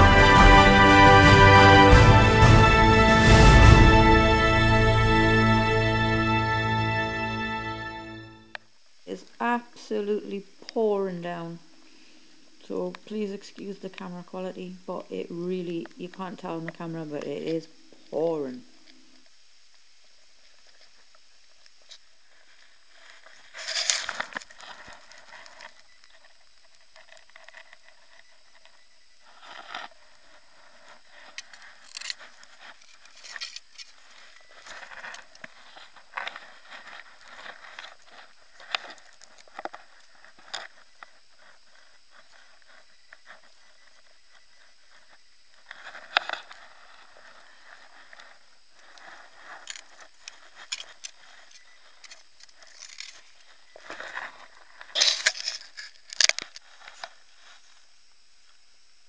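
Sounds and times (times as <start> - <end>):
crackling scraping and rustling: 12.6 - 58.7.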